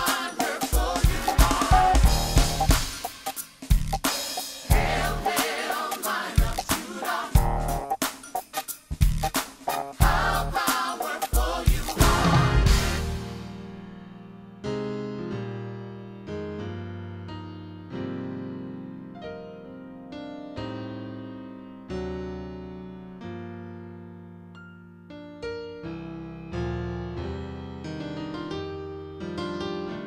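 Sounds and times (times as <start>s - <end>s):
piano playing slow chords: 12.0s - 30.0s.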